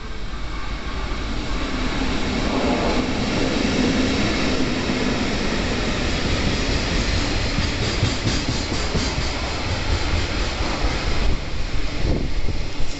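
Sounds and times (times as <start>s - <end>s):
electric train rumbling past: 0.0s - 12.9s.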